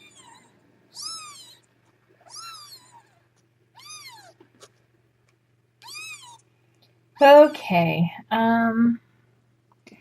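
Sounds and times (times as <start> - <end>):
kitten mewing: 0.0 - 4.5, 5.8 - 6.5.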